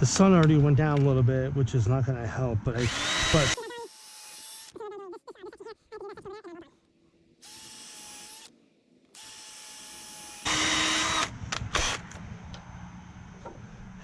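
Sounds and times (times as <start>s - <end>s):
power drill whining: 2.8s - 4.8s, 7.4s - 8.5s, 9.2s - 12.2s.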